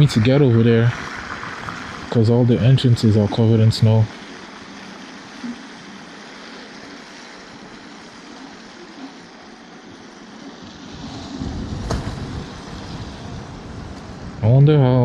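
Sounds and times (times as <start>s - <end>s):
tyres hissing on wet road: 0.0s - 15.0s
wind: 0.0s - 15.0s
low rumble: 10.8s - 15.0s.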